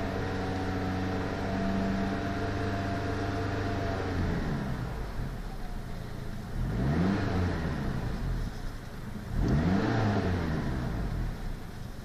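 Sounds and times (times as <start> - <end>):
car engine revving: 6.4 - 11.6.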